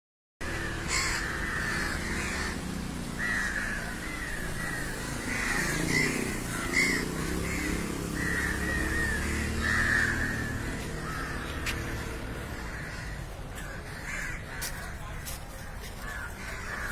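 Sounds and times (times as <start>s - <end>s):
crows cawing: 0.4s - 16.9s.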